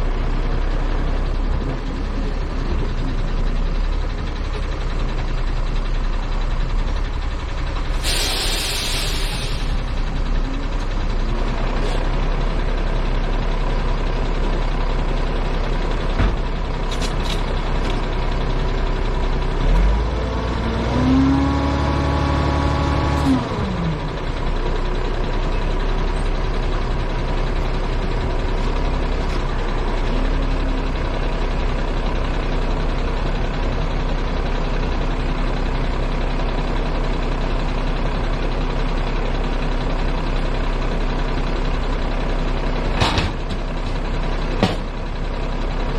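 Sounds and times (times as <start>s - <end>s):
truck engine running: 0.0s - 45.9s
short sharp clicks or hisses: 8.0s - 9.8s.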